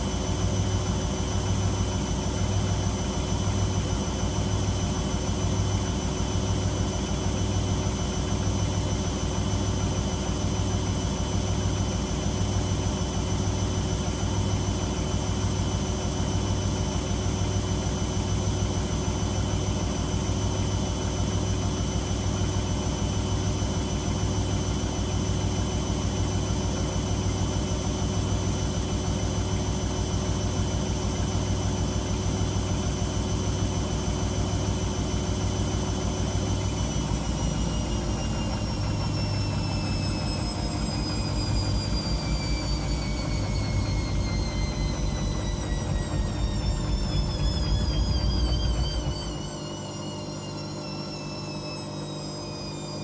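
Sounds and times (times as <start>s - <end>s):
washing machine spinning: 0.0s - 53.0s
high motor whine: 30.8s - 53.0s.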